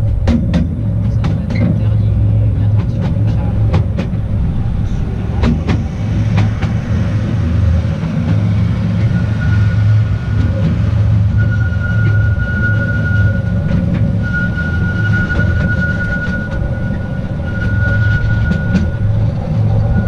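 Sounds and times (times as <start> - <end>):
train rumbling along track: 0.0 - 20.0
high wheel squeal: 8.2 - 20.0.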